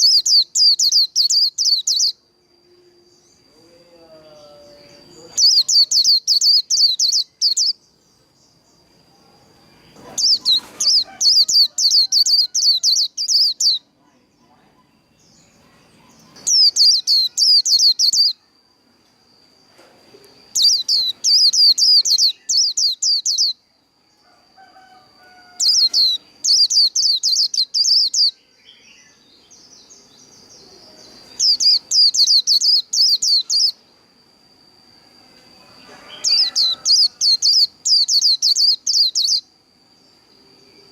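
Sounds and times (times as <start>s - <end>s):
bird twittering song: 0.0s - 2.3s, 2.9s - 34.1s, 35.8s - 40.9s
thin steady high tone: 0.0s - 40.9s.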